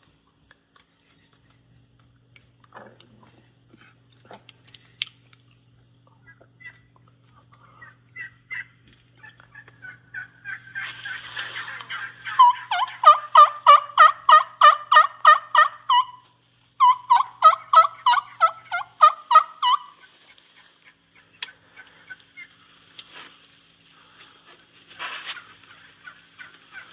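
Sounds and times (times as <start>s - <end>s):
turkey yelping: 6.2s - 6.9s, 7.6s - 22.6s, 25.2s - 26.9s.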